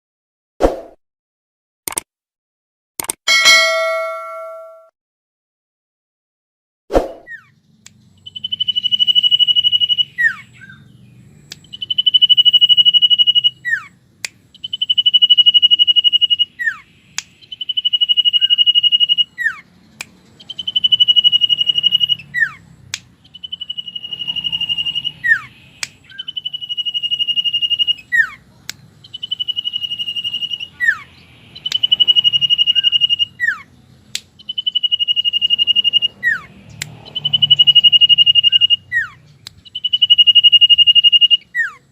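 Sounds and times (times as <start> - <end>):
sharp clicks: 1.9 - 2.1, 3.0 - 3.2, 11.4 - 11.9, 19.9 - 20.8, 31.6 - 32.0, 34.1 - 34.8, 36.7 - 37.2
bird whistling song: 7.3 - 41.9.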